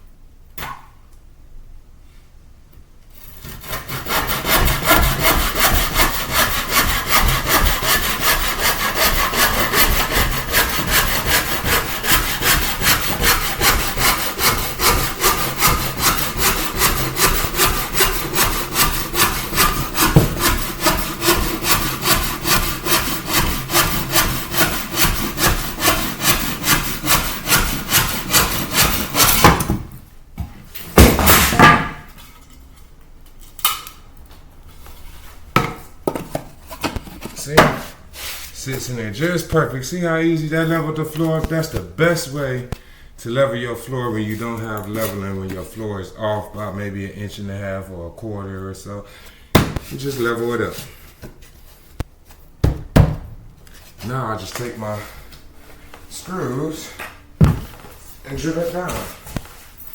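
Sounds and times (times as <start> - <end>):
hand saw cutting wood: 3.1 - 29.8, 31.0 - 32.0, 36.1 - 39.4, 44.4 - 45.6
loud knock: 20.0 - 20.5.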